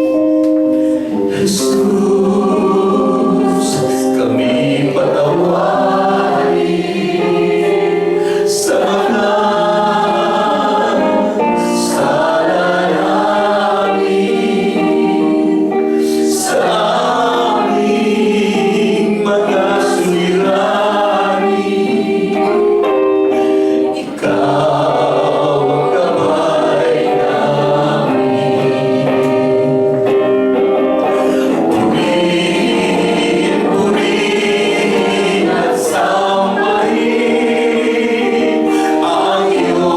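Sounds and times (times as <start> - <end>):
group singing worship song: 0.0 - 39.9.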